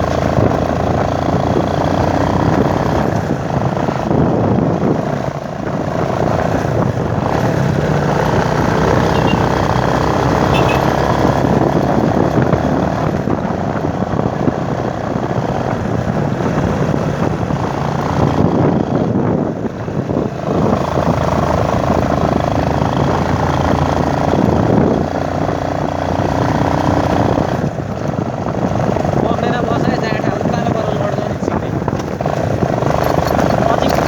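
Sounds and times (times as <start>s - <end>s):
motorcycle engine running: 0.0s - 34.0s
wind noise on microphone: 0.0s - 34.0s.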